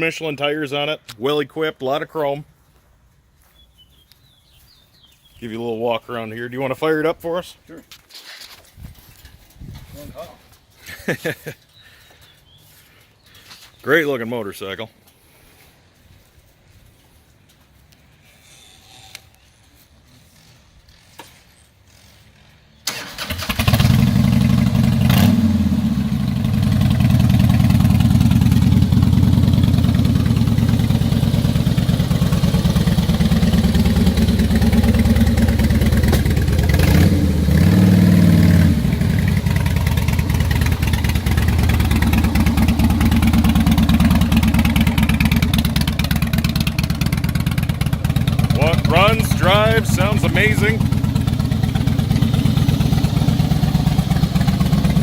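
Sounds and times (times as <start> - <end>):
motorcycle engine starting: 22.0 - 55.0
engine throttle blips: 22.9 - 55.0
motorcycle engine idling: 24.0 - 55.0.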